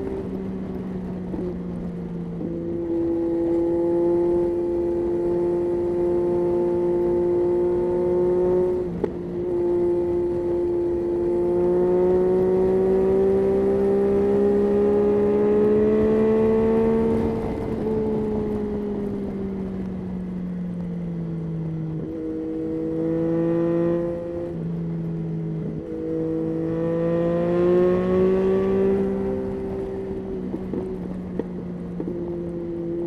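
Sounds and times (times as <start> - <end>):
motorcycle engine under throttle: 0.0 - 33.0.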